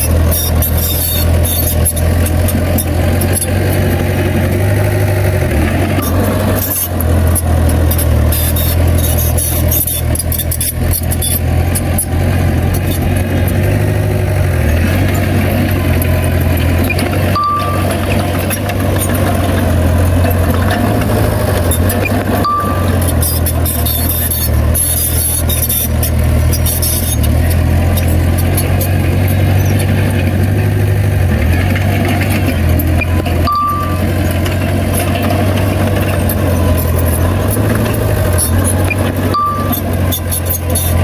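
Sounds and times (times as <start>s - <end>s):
heavy diesel engine droning: 0.0s - 41.0s
clicks and rattles: 14.8s - 41.0s.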